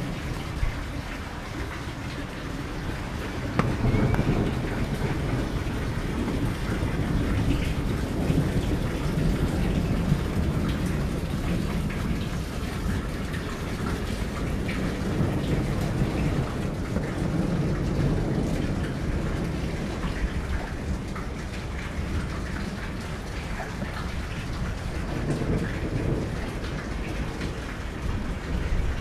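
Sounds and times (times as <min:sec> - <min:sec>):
heavy rain: 0:00.0 - 0:29.0
raindrops ticking: 0:00.0 - 0:29.0.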